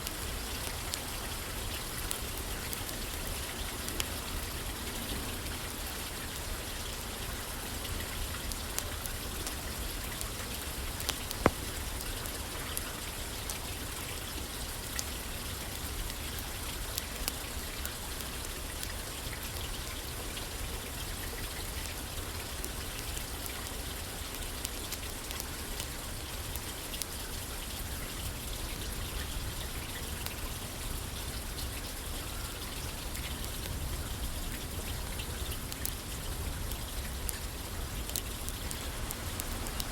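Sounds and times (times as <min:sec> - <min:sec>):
rain pattering on a roof: 0:00.0 - 0:39.9
faint clicks: 0:38.1 - 0:39.9.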